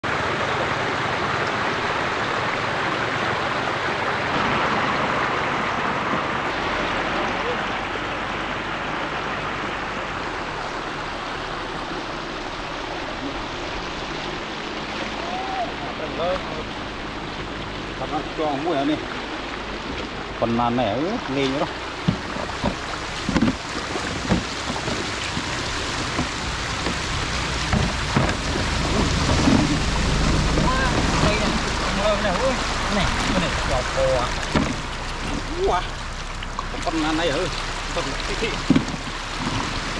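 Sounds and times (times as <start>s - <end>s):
floodwater rushing: 0.0s - 39.9s
moving water: 0.0s - 39.9s
short splashes or knocks: 21.2s - 39.9s.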